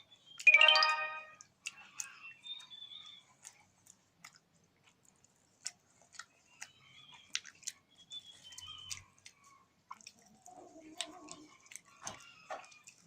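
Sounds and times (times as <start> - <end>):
person chewing food: 1.4 - 13.0
mouth clicks and smacks: 3.4 - 13.0.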